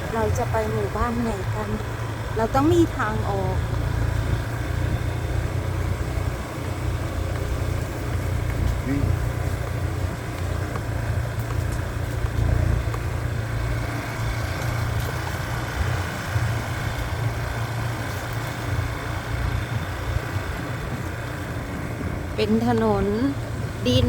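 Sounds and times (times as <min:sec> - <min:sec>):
motorbike engine running: 0:00.0 - 0:24.0.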